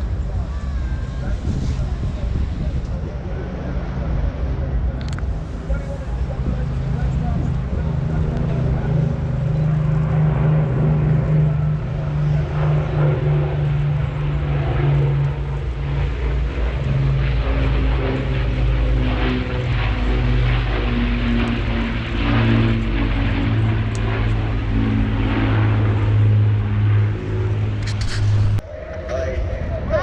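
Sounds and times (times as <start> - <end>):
piston aircraft engine running: 0.0 - 30.0.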